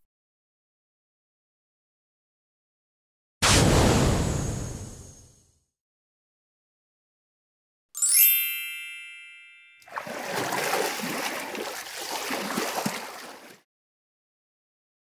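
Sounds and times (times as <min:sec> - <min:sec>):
bright chime: 0:08.0 - 0:09.9
water splash: 0:09.8 - 0:13.6.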